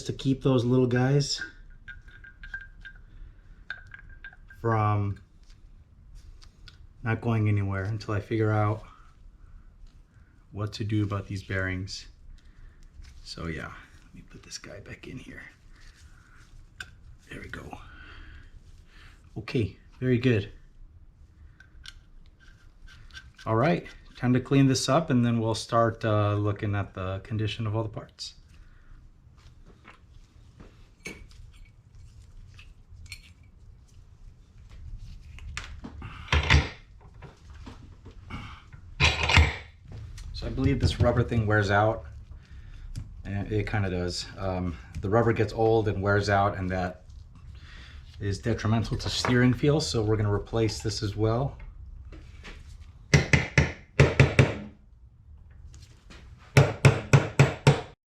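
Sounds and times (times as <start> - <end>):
metal parts clinking on workbench: 39.0 - 39.7
sharp taps and knocks: 53.1 - 54.7.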